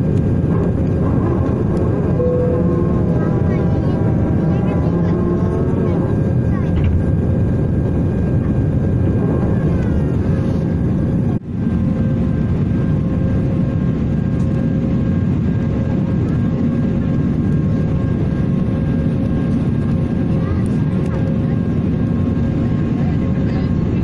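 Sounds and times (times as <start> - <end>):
jet engines rumbling in cabin: 0.0 - 24.0
faint whining tones: 0.2 - 7.0.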